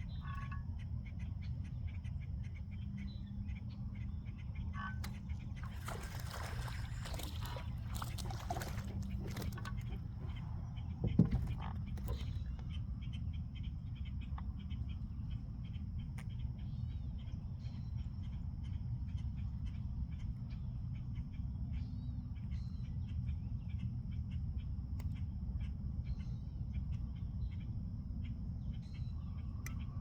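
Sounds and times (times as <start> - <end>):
birds chirping: 2.8 - 15.5.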